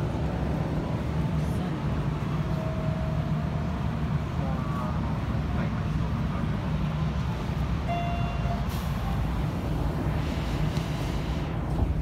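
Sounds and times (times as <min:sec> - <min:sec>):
electric train rumbling: 0:00.0 - 0:12.0
brief high tone: 0:07.9 - 0:08.8.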